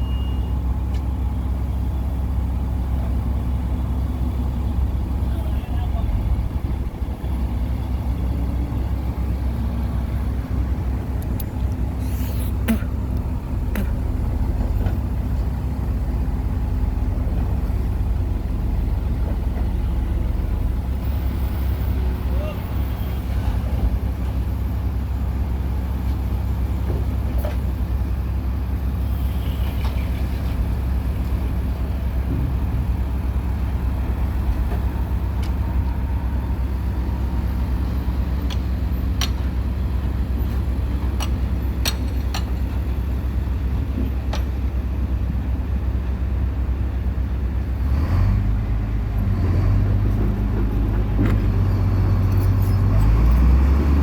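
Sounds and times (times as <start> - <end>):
low engine drone: 0.0 - 25.9.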